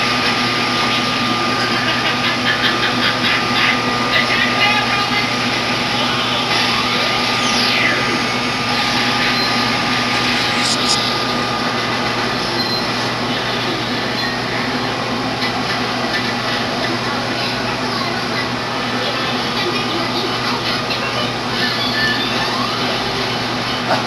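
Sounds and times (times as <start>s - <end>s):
brief falling tone: 6.5s - 11.7s.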